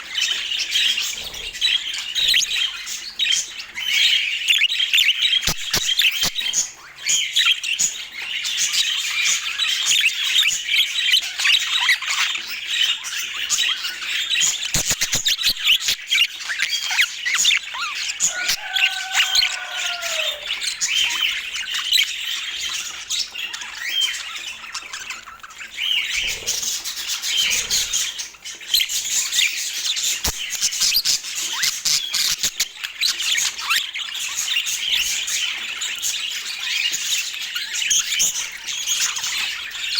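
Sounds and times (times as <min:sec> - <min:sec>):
budgerigars chirping: 0:00.0 - 0:39.9
low drawn-out bird call: 0:18.1 - 0:21.1.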